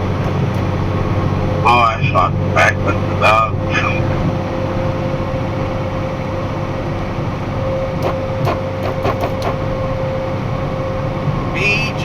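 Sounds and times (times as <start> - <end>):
truck engine and road drone: 0.0 - 12.0
whine: 2.5 - 12.0
clicks or rattles: 8.0 - 9.6.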